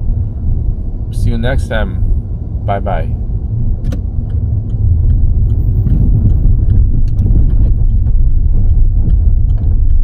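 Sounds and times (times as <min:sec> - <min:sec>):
car road and engine rumble: 0:00.0 - 0:10.0
light regular ticking: 0:03.8 - 0:10.0.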